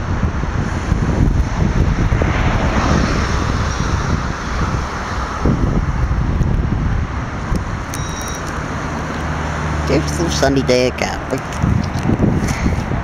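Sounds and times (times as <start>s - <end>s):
jet aircraft engine noise: 0.0s - 13.0s
wind buffeting microphone: 0.0s - 13.0s.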